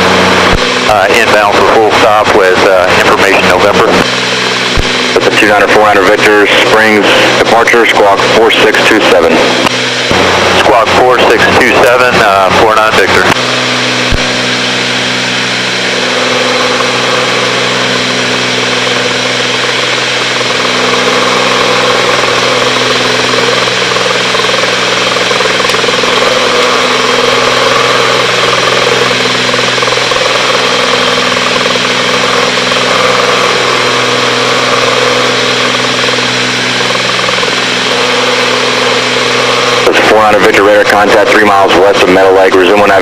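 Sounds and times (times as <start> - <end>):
twin propeller engines droning: 0.0 - 43.0.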